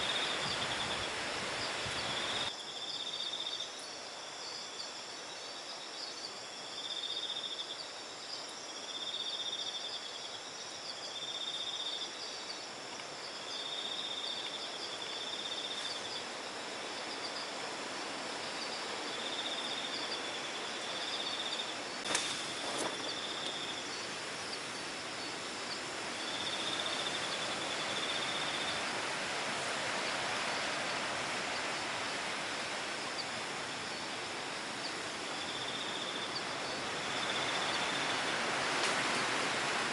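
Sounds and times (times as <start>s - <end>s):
night insects trilling: 0.0s - 39.9s.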